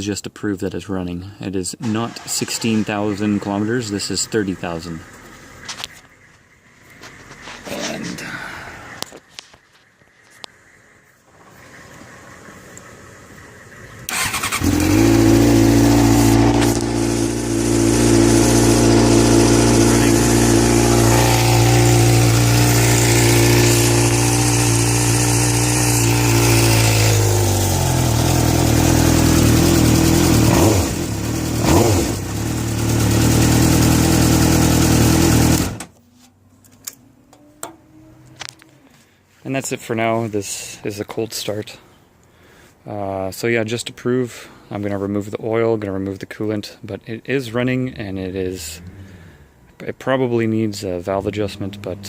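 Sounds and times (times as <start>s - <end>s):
motorcycle engine idling and revving: 2.6s - 8.0s, 11.4s - 36.0s, 50.8s - 52.0s.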